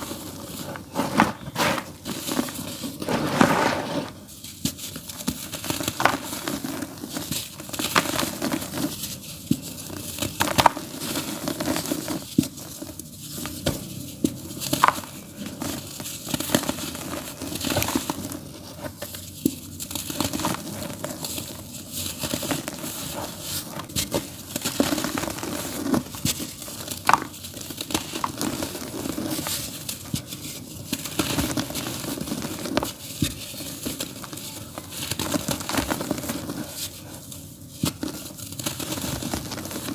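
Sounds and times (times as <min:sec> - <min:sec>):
dry dirt crunching: 0:00.6 - 0:04.2.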